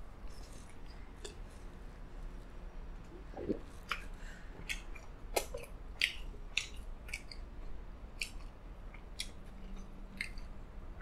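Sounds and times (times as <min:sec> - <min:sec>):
person chewing food: 0:03.1 - 0:10.6
wet mouth clicks and smacks: 0:03.4 - 0:07.5, 0:08.2 - 0:10.5.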